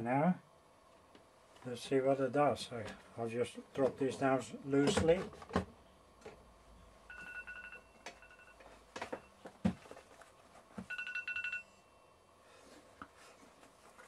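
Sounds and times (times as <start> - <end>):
telephone ringing faintly: 7.1 - 9.4, 10.8 - 12.2.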